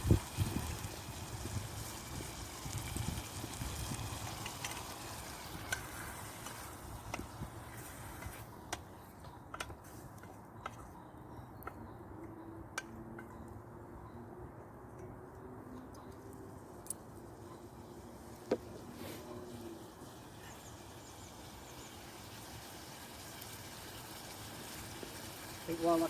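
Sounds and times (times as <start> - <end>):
campfire crackling and popping: 0.0 - 8.4, 20.0 - 26.0.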